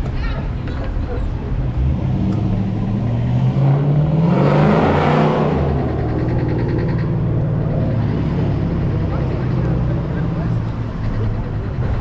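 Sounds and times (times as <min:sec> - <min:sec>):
car engine revving past: 0:01.7 - 0:10.7.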